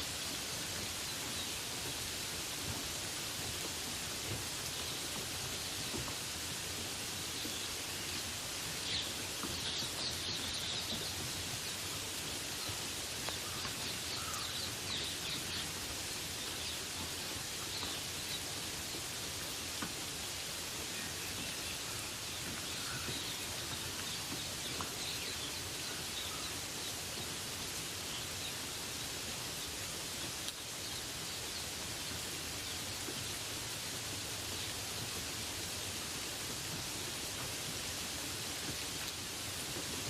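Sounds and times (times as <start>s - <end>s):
rain hiss: 0.0s - 40.0s
birds chirping: 7.1s - 15.8s.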